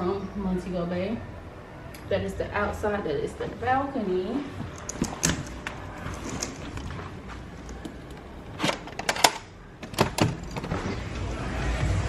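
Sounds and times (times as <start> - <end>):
faint room noise: 0.0 - 12.0
sharp clicks and knocks: 4.6 - 10.8.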